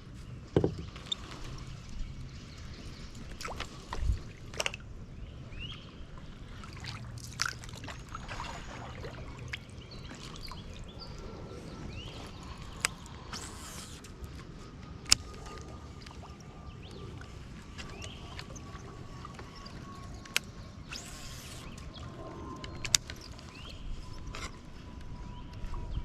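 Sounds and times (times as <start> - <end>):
birds chirping: 15.1 - 26.0.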